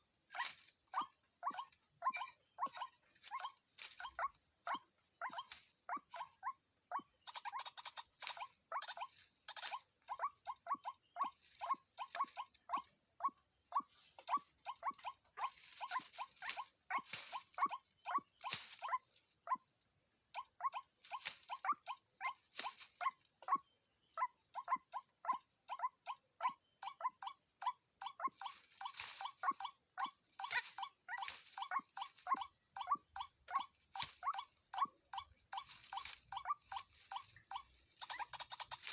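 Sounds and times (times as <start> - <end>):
waterhens calling: 27.4 - 38.9.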